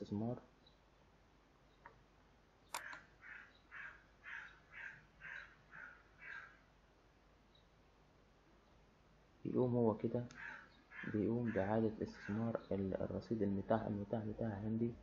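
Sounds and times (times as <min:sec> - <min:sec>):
sharp click: 0:02.7 - 0:03.0
bird calling: 0:02.7 - 0:06.7, 0:10.3 - 0:12.9.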